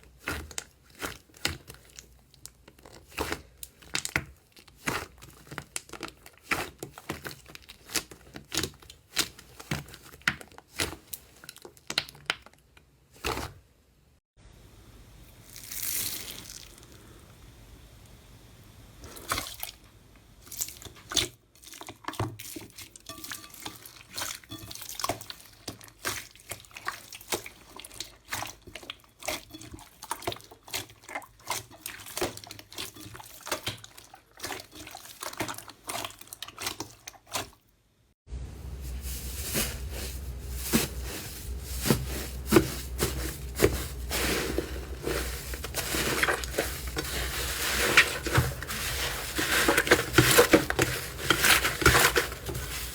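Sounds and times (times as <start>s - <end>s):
steady low hum: 38.3s - 52.9s.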